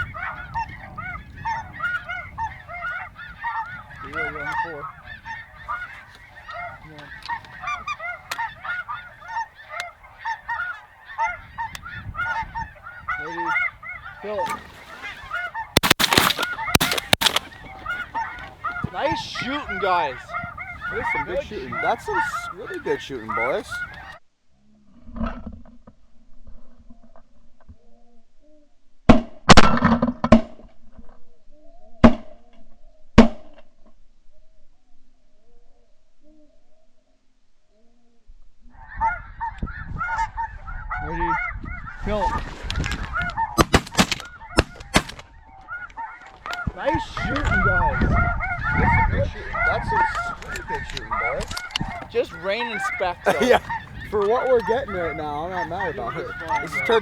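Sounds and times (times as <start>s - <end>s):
geese honking: 0.0s - 24.2s, 38.8s - 42.4s, 44.2s - 57.0s
shotgun shots: 15.8s - 17.9s, 43.6s - 45.2s.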